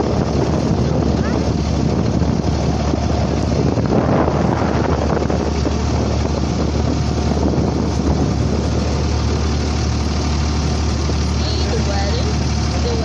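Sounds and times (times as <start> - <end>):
boat engine running: 0.0 - 13.0
wind buffeting microphone: 0.0 - 13.0.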